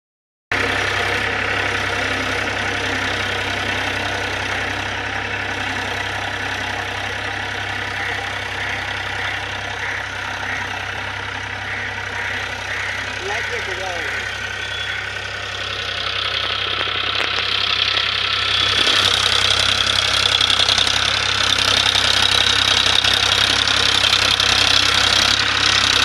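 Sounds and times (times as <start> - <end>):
tractor diesel engine idling: 0.5 - 26.0.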